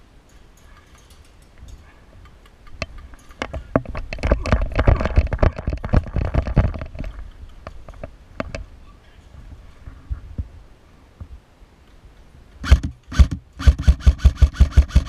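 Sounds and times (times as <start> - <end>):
sharp clicks and knocks: 0.3 - 8.7.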